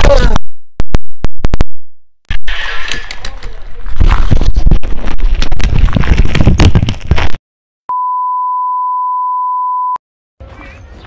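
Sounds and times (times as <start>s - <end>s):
electronic beep tone: 7.9s - 10.0s.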